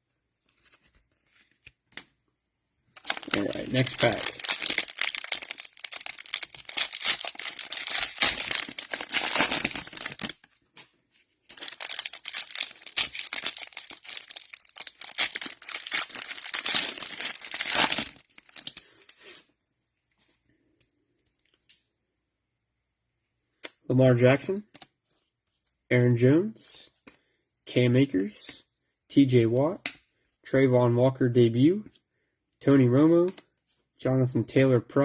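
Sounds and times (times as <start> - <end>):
cards rustling: 2.9 - 19.4
cellophane wrapper crinkling: 3.0 - 10.8, 11.4 - 19.2.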